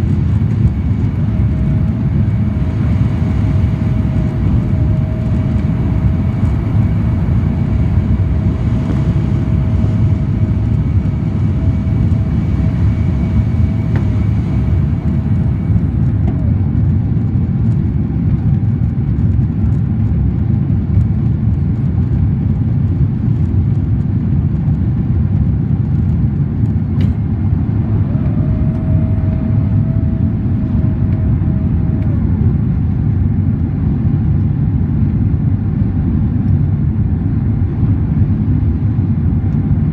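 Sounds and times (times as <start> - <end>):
faint steady whine: 0.0 - 20.2, 22.8 - 39.9
jet engine cabin rumble: 0.0 - 39.9.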